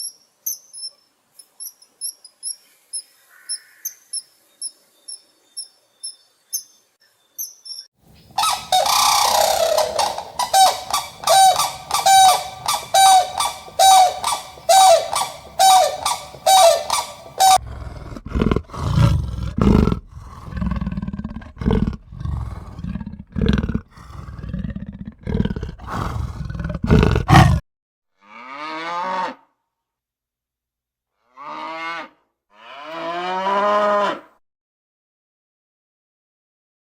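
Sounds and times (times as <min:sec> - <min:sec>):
short pitched animal calls: 0:08.4 - 0:17.7
long pitched animal call: 0:08.4 - 0:27.6
low rough animal calls: 0:08.4 - 0:27.6.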